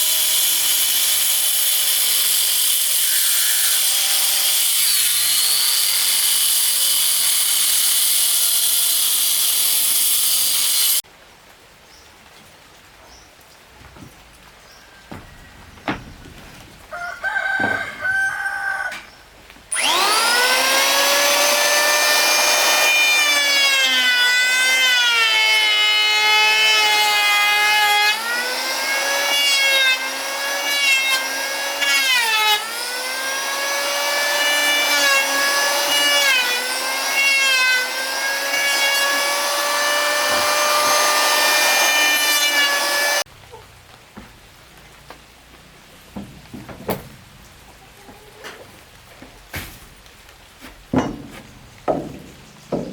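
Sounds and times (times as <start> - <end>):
power saw cutting wood: 0.0 - 11.0, 19.7 - 43.3.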